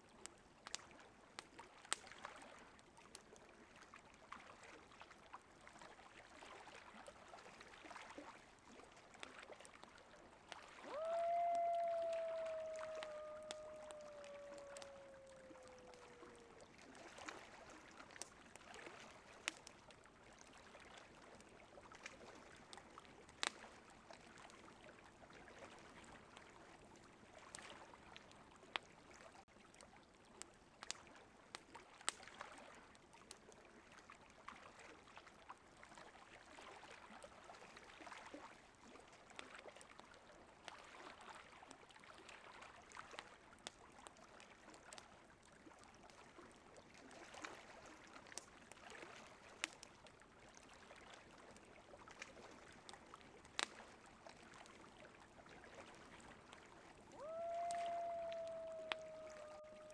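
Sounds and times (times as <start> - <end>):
campfire crackling and popping: 0.2 - 2.2, 10.5 - 24.6, 29.6 - 32.4, 48.3 - 49.0, 49.6 - 50.2, 51.5 - 54.6, 57.2 - 59.9
coyote howling: 10.9 - 16.6, 57.2 - 59.9.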